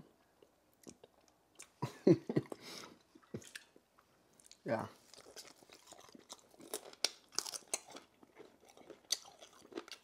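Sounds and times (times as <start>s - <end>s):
crunching on chicken bone: 5.1s - 10.0s.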